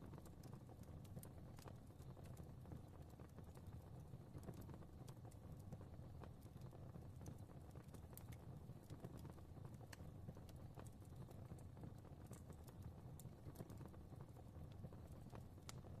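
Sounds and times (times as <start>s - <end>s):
faint fireplace fire crackling: 0.0s - 16.0s.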